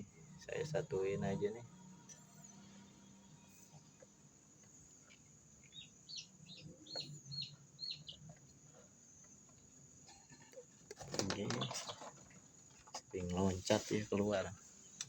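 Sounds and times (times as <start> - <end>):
chicks peeping: 5.0 - 9.5, 11.3 - 12.3.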